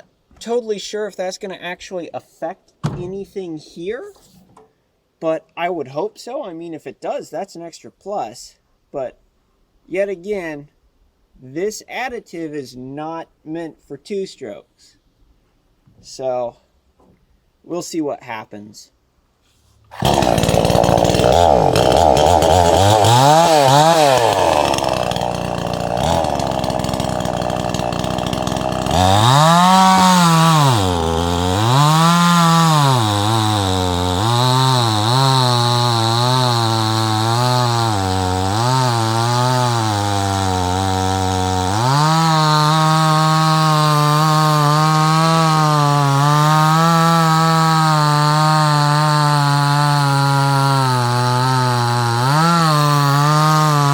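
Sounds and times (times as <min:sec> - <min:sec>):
chainsaw engine revving: 0:19.9 - 0:53.9.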